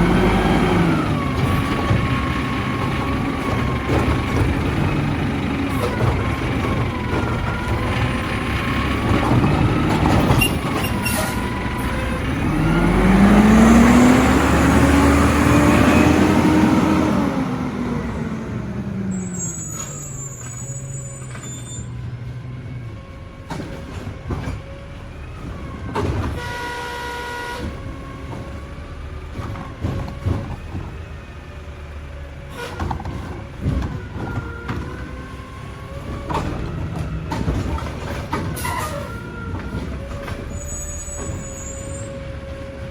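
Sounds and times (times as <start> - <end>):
garbage truck engine revving: 0.0 - 42.9
short tone: 19.1 - 21.9.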